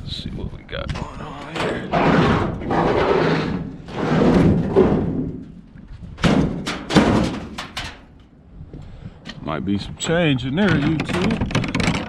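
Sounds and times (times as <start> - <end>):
heavy scrap scraping and thudding: 1.0 - 8.0
sharp knocks: 6.2 - 8.1.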